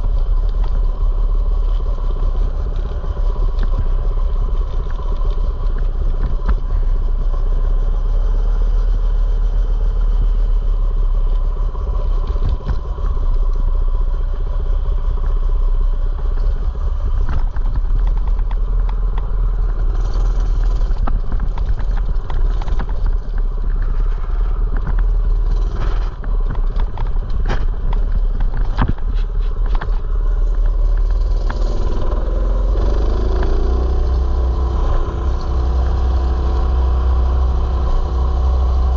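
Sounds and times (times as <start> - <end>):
small motorbike engine running: 0.0 - 38.9
clicks and rattles: 16.3 - 36.0.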